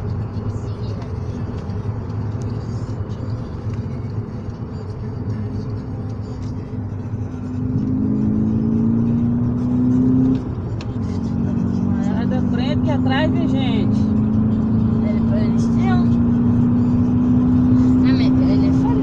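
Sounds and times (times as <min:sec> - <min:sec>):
road noise inside a car: 0:00.0 - 0:19.0
engine tone rising in pitch: 0:06.9 - 0:10.4, 0:11.1 - 0:19.0.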